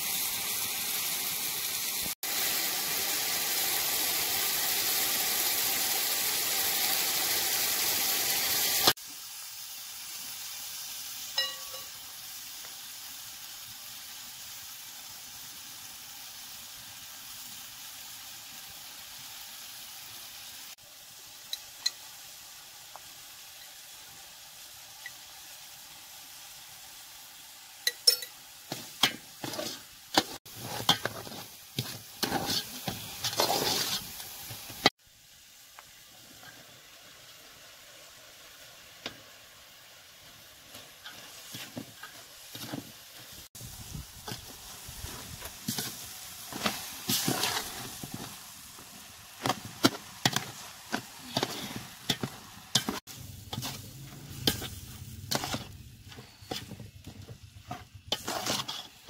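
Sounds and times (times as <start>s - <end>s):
vegetables sizzling in oil: 0.0s - 59.0s
metal ladle scraping a pot: 29.0s - 34.2s, 49.4s - 59.0s.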